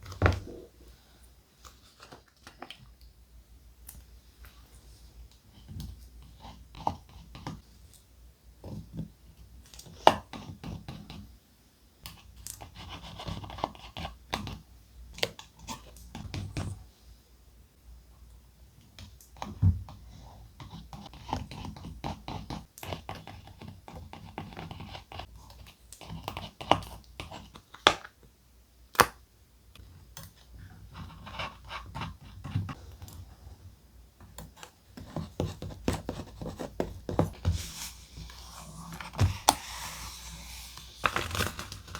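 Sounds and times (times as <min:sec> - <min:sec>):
paper rustling and crinkling: 0:37.2 - 0:41.9.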